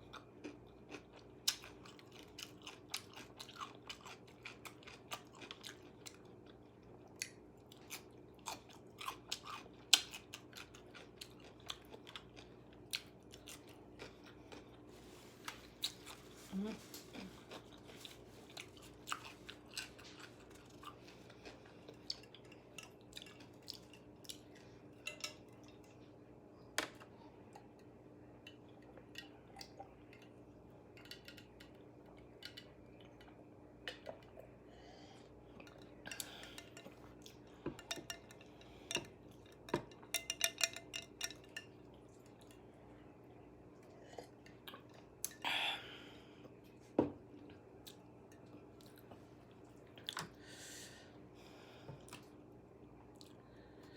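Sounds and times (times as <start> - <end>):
person chewing crunchy food: 0.0 - 24.8.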